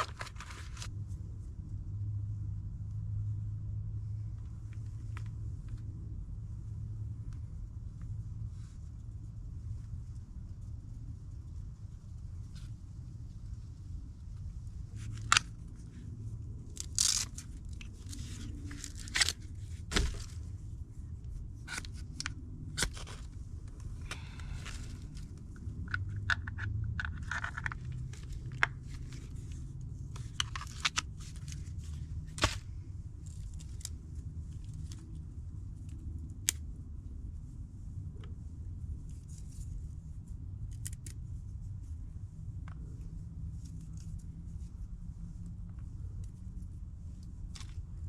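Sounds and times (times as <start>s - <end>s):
low rumble: 0.0s - 48.0s.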